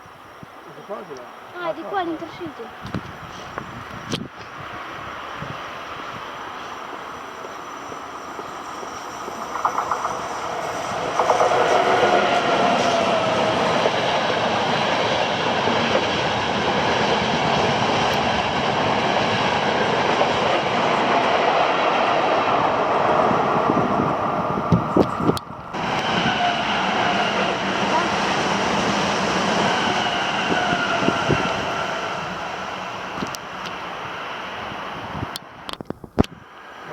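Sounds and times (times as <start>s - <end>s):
train passing: 0.0s - 36.9s
wheels clicking over rail joints: 8.3s - 18.4s.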